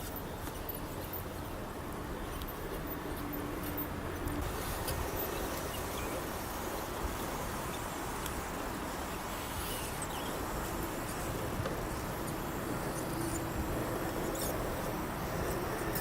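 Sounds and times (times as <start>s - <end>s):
faint motor and gear whine: 0.0s - 16.0s.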